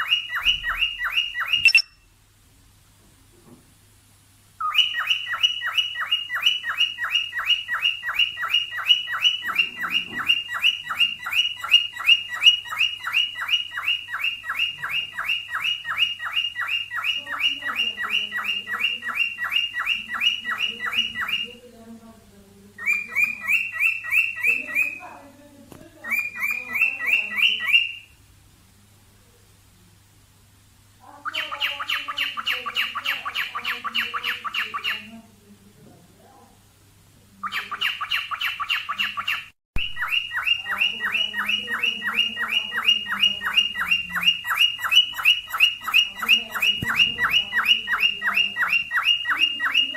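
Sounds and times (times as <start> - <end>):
cockatiel whistled chirps: 0.0 - 2.1, 4.6 - 17.2, 37.5 - 49.9.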